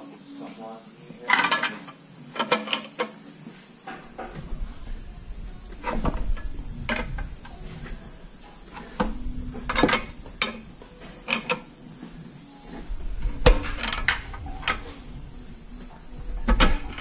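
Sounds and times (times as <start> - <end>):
metal tools clinking under car: 8.6 - 11.7, 13.2 - 15.0.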